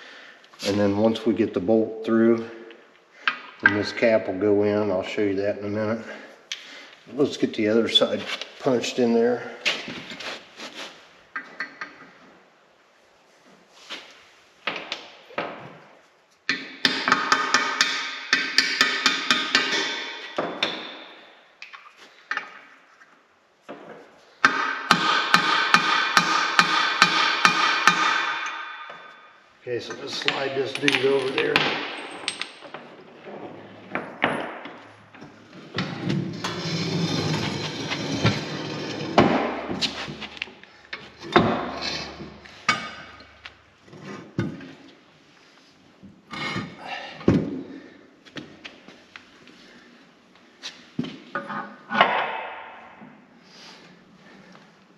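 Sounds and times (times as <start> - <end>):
sharp metal knocks: 16.5 - 21.2, 24.4 - 29.3
hammer striking steel: 24.4 - 29.2
metal scraping and grinding: 35.4 - 40.3, 41.1 - 42.5.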